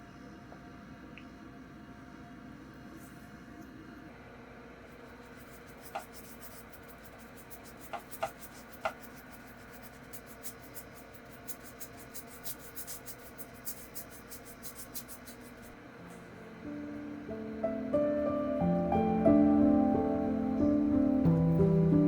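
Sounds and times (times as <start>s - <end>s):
pencil scratching on paper: 5.0s - 15.8s.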